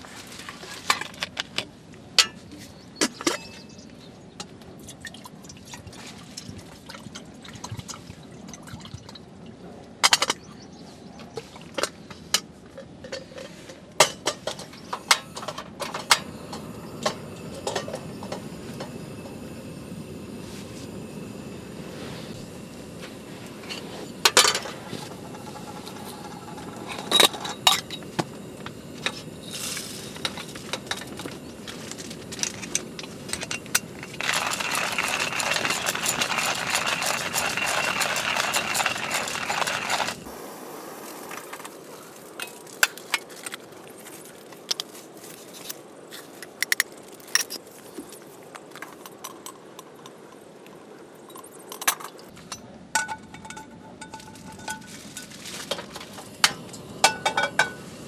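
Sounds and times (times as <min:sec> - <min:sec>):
steady rush of noise: 0:11.8 - 0:58.0.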